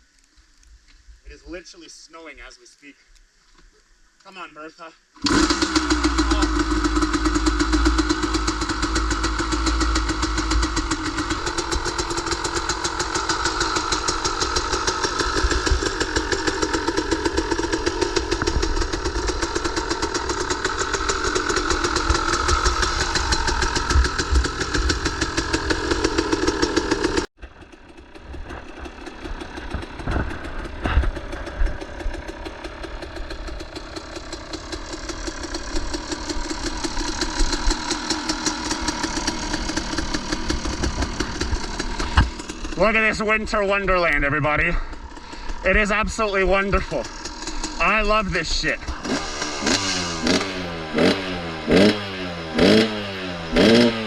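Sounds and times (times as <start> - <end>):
dirt bike engine idling: 5.1 - 54.0
engine knocks: 5.2 - 42.9.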